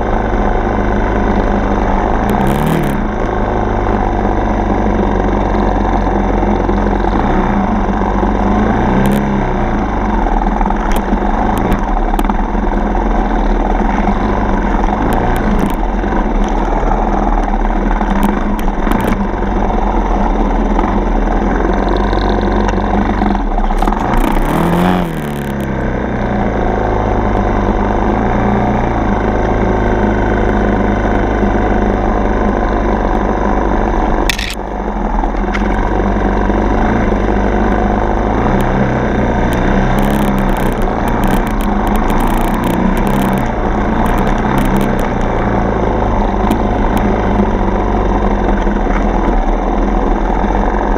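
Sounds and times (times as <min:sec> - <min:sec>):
dirt bike engine revving: 0:01.0 - 0:04.2, 0:07.0 - 0:20.2, 0:20.8 - 0:29.0, 0:35.6 - 0:48.6
knocks and clatter: 0:39.5 - 0:45.4.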